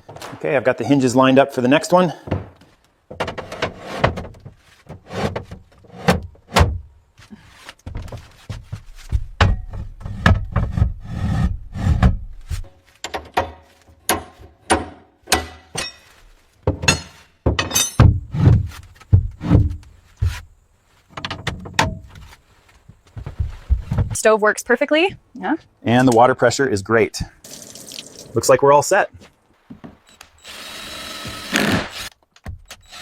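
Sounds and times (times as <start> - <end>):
knocks and clatter of wooden parts: 0.0 - 0.8, 2.1 - 6.9, 7.6 - 11.0, 12.0 - 24.2.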